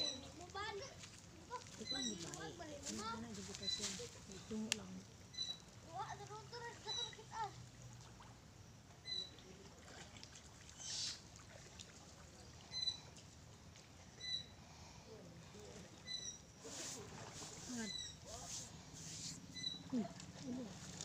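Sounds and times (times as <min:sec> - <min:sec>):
quiet shore water: 0:00.0 - 0:21.0
faint bird chirps: 0:05.3 - 0:07.4, 0:09.0 - 0:09.5, 0:10.7 - 0:11.2, 0:12.4 - 0:13.2, 0:14.2 - 0:15.0, 0:15.9 - 0:16.7, 0:17.7 - 0:18.3, 0:19.5 - 0:20.7
splash-like hiss: 0:16.6 - 0:19.4.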